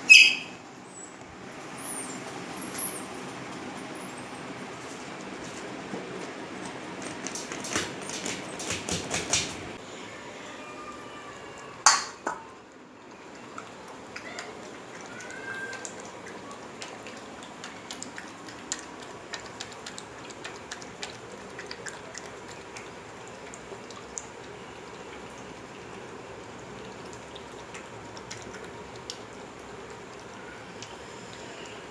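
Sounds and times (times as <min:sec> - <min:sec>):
dog lapping and licking: 0:06.6 - 0:09.6, 0:13.2 - 0:31.8.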